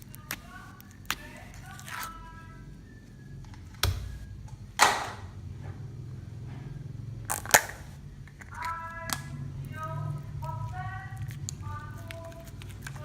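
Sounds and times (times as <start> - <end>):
slime popping and snapping: 0.0 - 2.1, 7.3 - 9.3.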